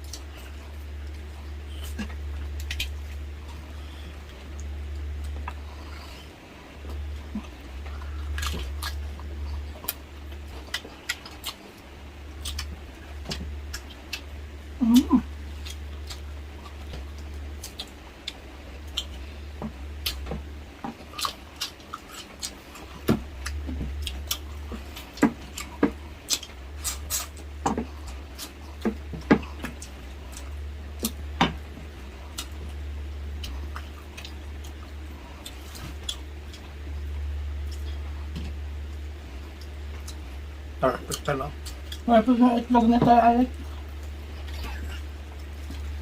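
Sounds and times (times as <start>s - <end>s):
low hum: 0.0s - 46.0s
wet chewing and lip smacks: 7.4s - 11.8s, 12.4s - 14.3s, 15.6s - 19.2s, 33.4s - 36.7s.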